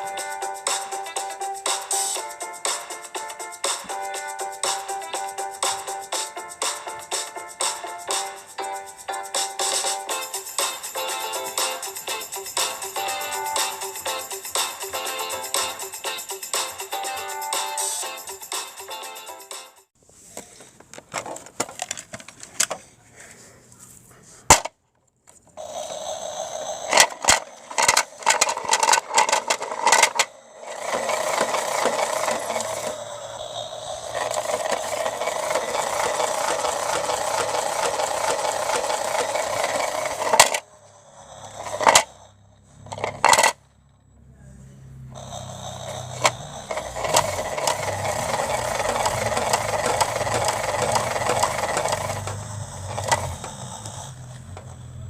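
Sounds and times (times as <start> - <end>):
bricks rattling in toy washing machine: 21.0 - 22.8, 26.6 - 40.6, 41.6 - 42.1, 42.9 - 43.6, 46.0 - 53.7
low motor hum: 25.6 - 55.0.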